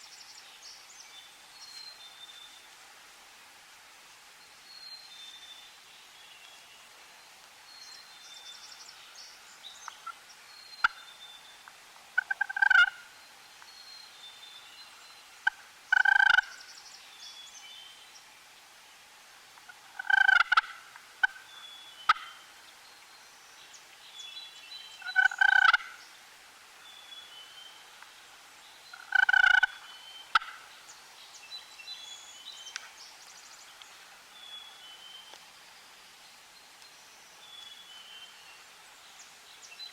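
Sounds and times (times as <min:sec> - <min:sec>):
turkey gobbling: 0:12.2 - 0:13.0, 0:15.4 - 0:16.5, 0:20.0 - 0:21.4, 0:25.0 - 0:25.9, 0:29.0 - 0:30.6.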